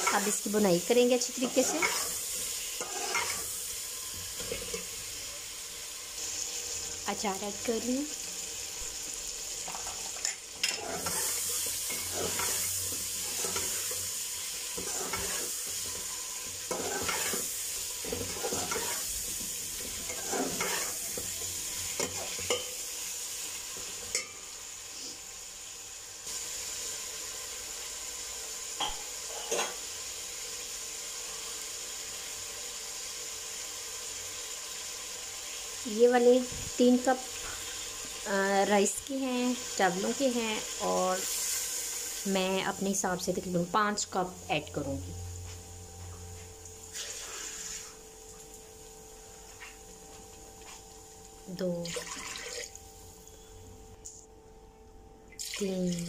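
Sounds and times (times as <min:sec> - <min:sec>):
food sizzling in a pot: 0:00.0 - 0:54.3, 0:55.4 - 0:56.0
metal spoon scraping a pot: 0:01.4 - 0:03.5, 0:09.8 - 0:14.0, 0:14.7 - 0:16.1, 0:16.7 - 0:19.1, 0:19.9 - 0:21.1.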